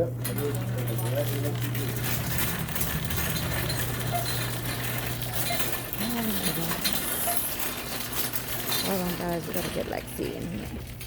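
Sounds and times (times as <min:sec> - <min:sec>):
metallic clinking and rattling: 0:00.2 - 0:11.0
low hum: 0:01.6 - 0:06.1.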